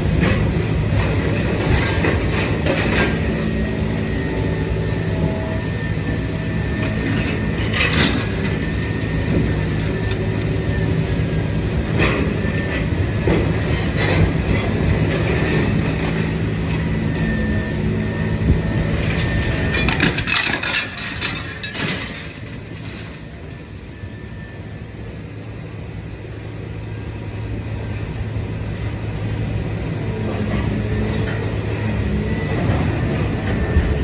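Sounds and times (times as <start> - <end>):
scrap metal crunching and clattering: 19.0 - 23.5.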